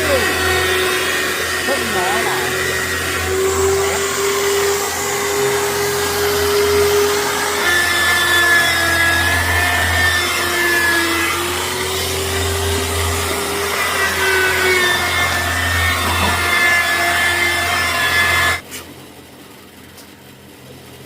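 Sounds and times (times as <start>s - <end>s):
small motor whining: 0.0s - 18.6s.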